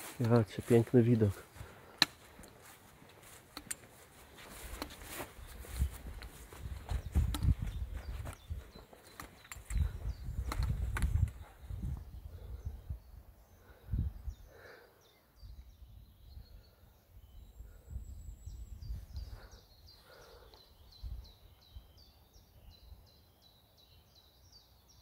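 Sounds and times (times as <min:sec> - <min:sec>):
songbird singing: 0:00.0 - 0:25.0.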